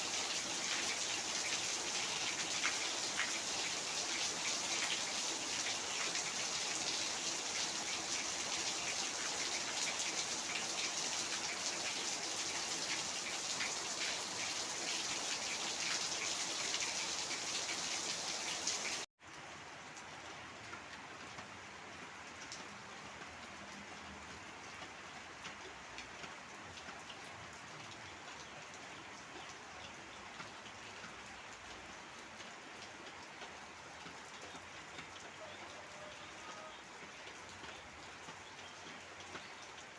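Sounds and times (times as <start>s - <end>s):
heavy rain falling: 0.0s - 29.1s, 30.6s - 39.9s.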